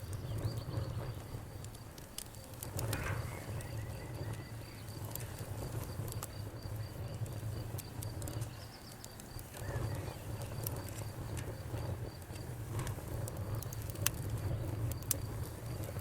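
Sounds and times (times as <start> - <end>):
cricket chirping: 0.0 - 13.7
campfire crackling and popping: 0.0 - 16.0.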